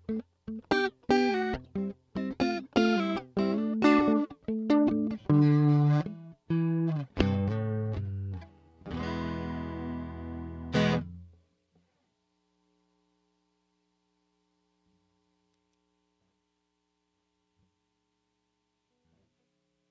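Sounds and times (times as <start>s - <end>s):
flanged electric guitar chords: 0.0s - 11.4s
faint amplifier hum: 0.0s - 19.9s.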